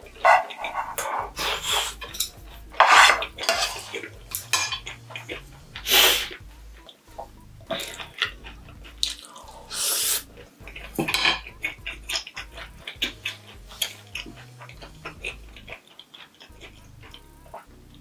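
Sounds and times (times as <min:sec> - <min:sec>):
wet chewing clicks and smacks: 0:00.0 - 0:18.0
puffs of breath: 0:01.4 - 0:02.0, 0:05.8 - 0:06.4, 0:09.3 - 0:10.3
wooden spoon set on plate: 0:02.8 - 0:04.8.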